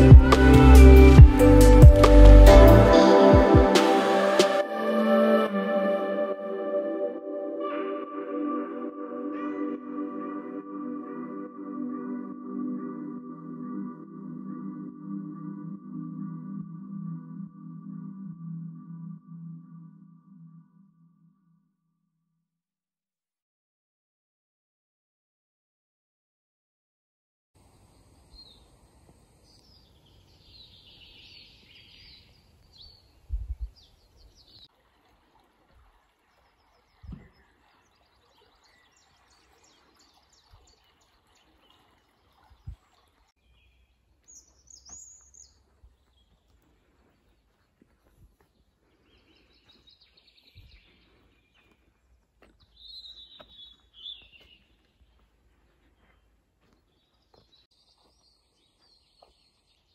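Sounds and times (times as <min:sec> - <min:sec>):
outdoor background noise: 0:27.6 - 0:59.9
small birds chirping: 0:27.7 - 0:34.7, 0:35.9 - 0:59.9.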